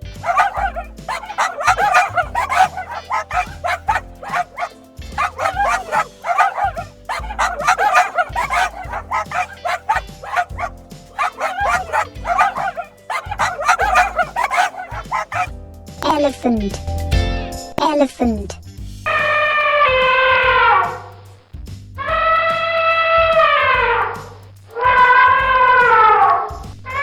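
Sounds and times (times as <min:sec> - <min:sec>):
dog barking: 0:00.1 - 0:15.5.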